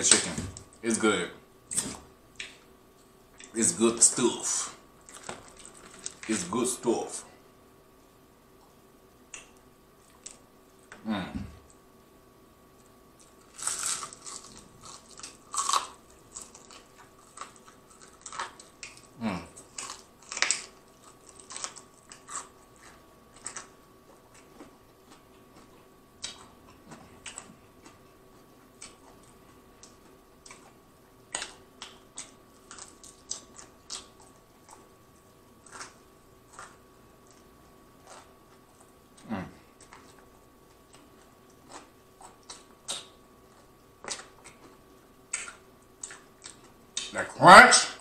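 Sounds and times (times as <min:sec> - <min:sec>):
crunching fried chicken: 0:04.4 - 0:06.7, 0:13.2 - 0:47.3.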